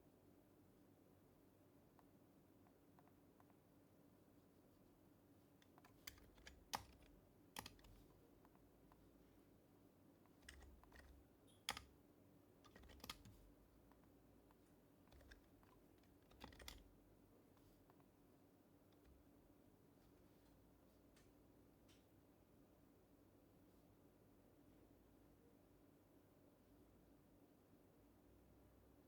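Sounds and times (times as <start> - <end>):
soft keyboard typing: 1.9 - 3.7, 5.6 - 9.1, 10.2 - 12.0, 12.6 - 18.1, 18.9 - 19.3.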